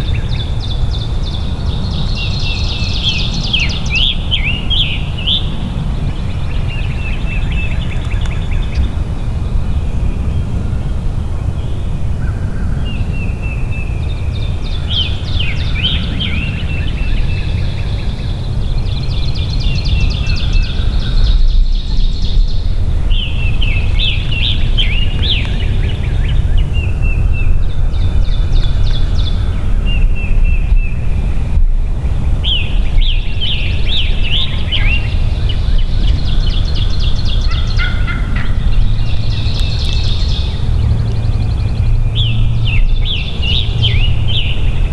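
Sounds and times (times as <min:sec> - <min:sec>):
steady low rumble: 0:00.0 - 0:44.9
turkey gobbling: 0:37.5 - 0:38.6.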